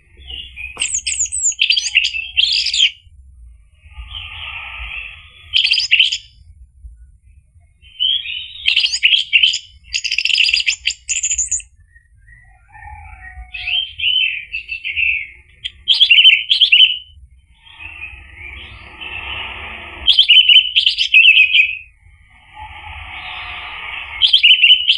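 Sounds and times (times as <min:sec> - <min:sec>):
buzzy bird chatter: 0:00.2 - 0:02.9.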